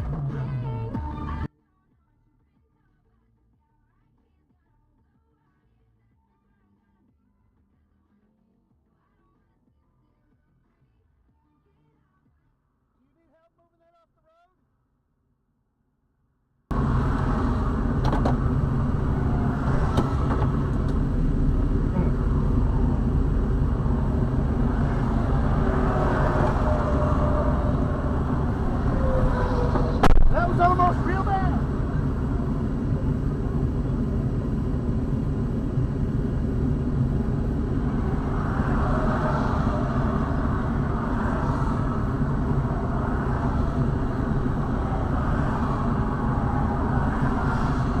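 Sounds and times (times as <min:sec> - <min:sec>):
car engine and road noise: 0:00.0 - 0:01.5, 0:16.7 - 0:48.0.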